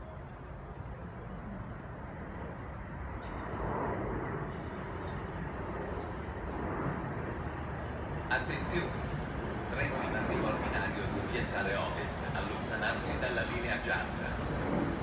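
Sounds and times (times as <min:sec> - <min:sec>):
distant train rumble: 0:00.0 - 0:15.0.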